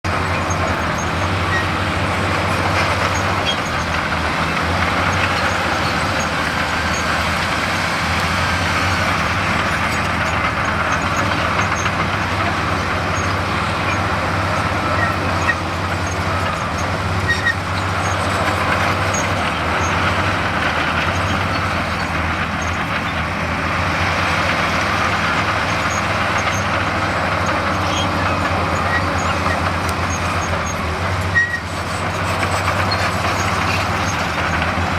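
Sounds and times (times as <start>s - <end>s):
heavy diesel machinery running: 0.0s - 34.9s.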